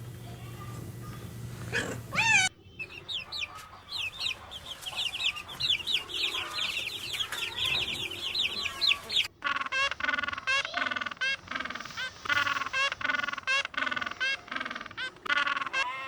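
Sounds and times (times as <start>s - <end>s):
flock of birds chirping: 0.0s - 16.0s
lower bird call: 1.3s - 9.3s.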